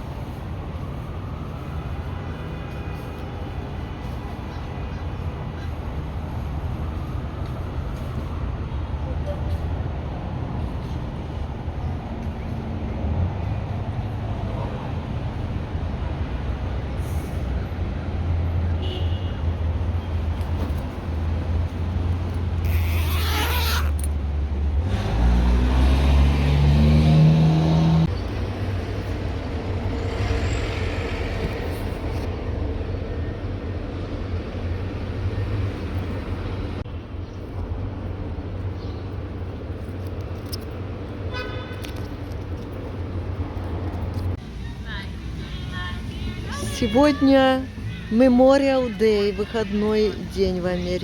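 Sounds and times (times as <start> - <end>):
road traffic rumble: 0.0 - 51.0
vehicle engine accelerating: 23.9 - 28.8.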